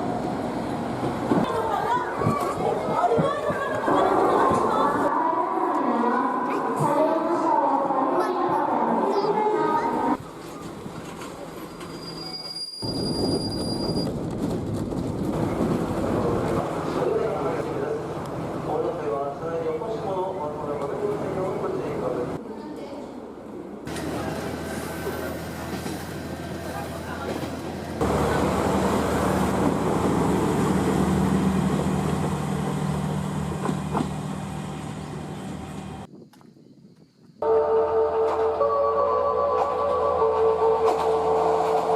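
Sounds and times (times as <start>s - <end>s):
train wheels rumbling: 0.0s - 5.1s, 10.1s - 22.4s, 23.9s - 36.1s
train wheel squeal: 11.5s - 14.2s.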